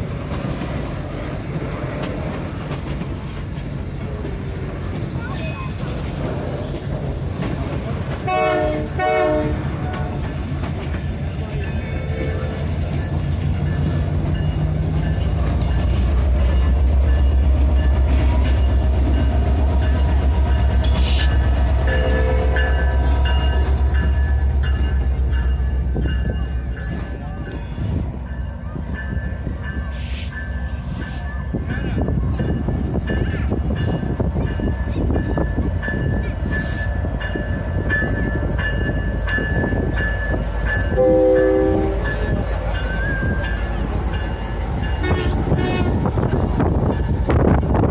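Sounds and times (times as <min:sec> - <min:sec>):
train running on rails: 0:00.0 - 0:47.9
locomotive horn: 0:08.2 - 0:10.3, 0:41.0 - 0:42.1, 0:45.0 - 0:46.1.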